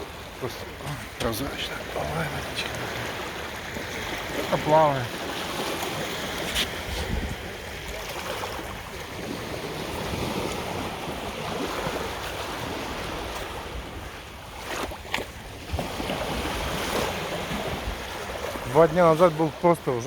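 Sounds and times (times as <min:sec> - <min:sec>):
waves washing onto beach: 0:00.0 - 0:20.0
wind buffeting microphone: 0:05.2 - 0:08.0.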